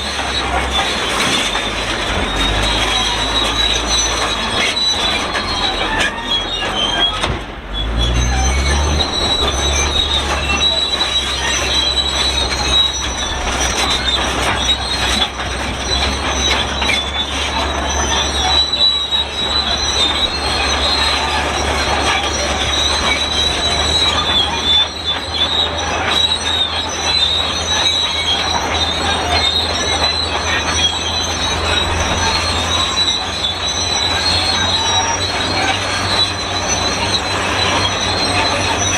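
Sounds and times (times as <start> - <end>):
diesel engine droning: 0.0 - 38.9
steel tracks squealing: 0.0 - 38.9.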